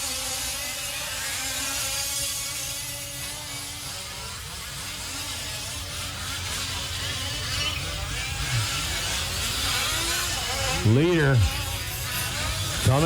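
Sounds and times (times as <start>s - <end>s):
small two-stroke engines buzzing: 0.0s - 13.0s.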